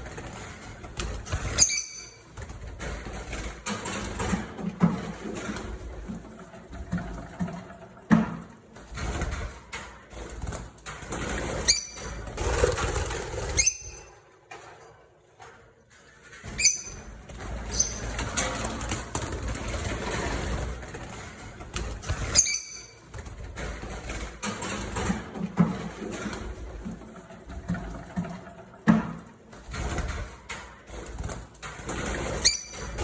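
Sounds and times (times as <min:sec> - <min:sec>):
wings flapping and rustling: 0:00.0 - 0:07.4, 0:16.3 - 0:28.2.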